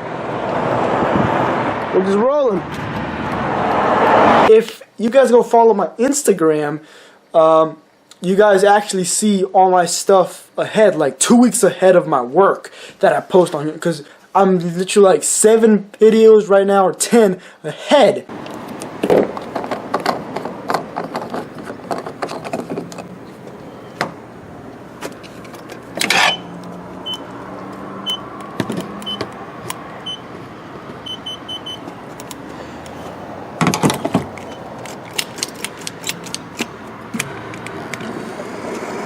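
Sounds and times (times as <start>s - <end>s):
clicking and rattling handling: 18.4s - 24.1s, 33.7s - 38.1s.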